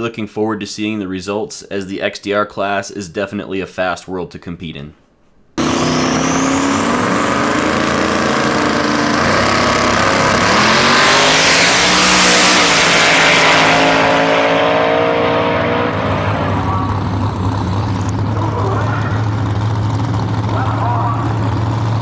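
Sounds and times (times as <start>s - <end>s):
car engine running hard: 5.6s - 22.0s.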